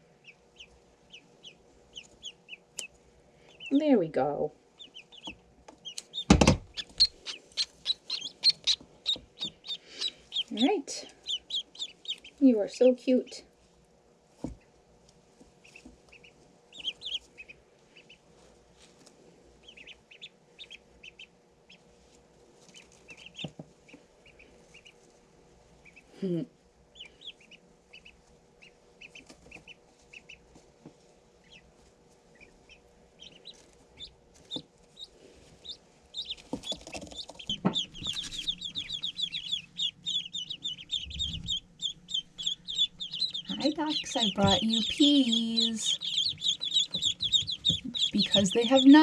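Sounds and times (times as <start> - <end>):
ducklings peeping: 0.0 - 13.5, 15.4 - 49.0
knocks: 6.3 - 6.7
rustling: 13.6 - 20.0, 21.7 - 26.0, 29.0 - 49.0.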